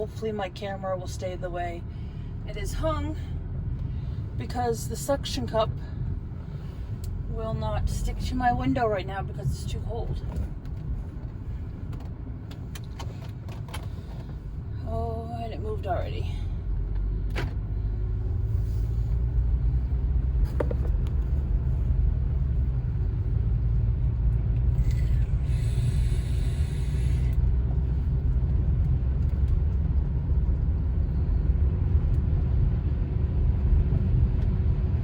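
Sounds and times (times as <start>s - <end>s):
car cabin road noise: 0.0s - 35.0s.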